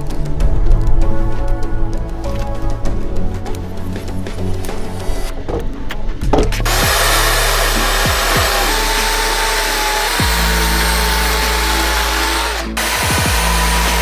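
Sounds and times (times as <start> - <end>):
background music: 0.0 - 14.0
power tool running: 6.6 - 14.0.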